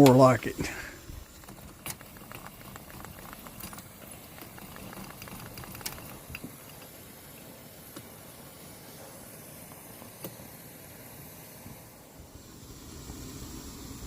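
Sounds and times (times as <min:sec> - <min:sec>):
burner crackles and pops: 0:00.0 - 0:14.0
pressure burner hissing: 0:00.0 - 0:14.0.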